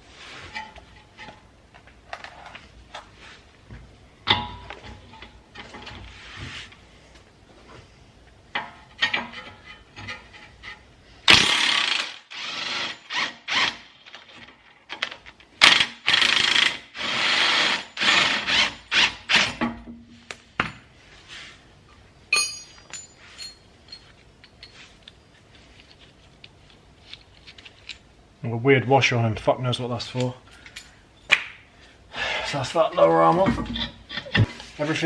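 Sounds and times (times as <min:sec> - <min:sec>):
impact wrench bursts: 0:11.3 - 0:13.9, 0:15.6 - 0:19.6
metallic clink: 0:22.3 - 0:24.8.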